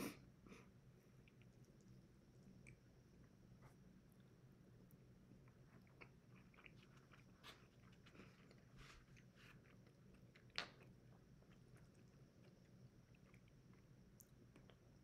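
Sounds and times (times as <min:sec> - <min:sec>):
person chewing food: 0:04.9 - 0:15.0.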